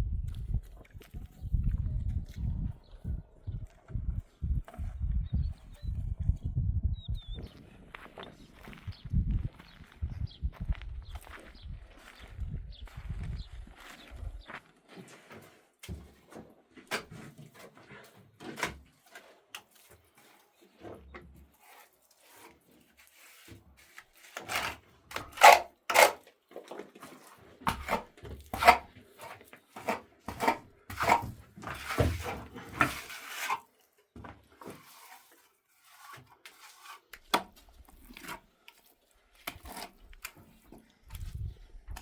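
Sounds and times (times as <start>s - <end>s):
knocks and scrapes of hard objects: 15.0s - 42.0s.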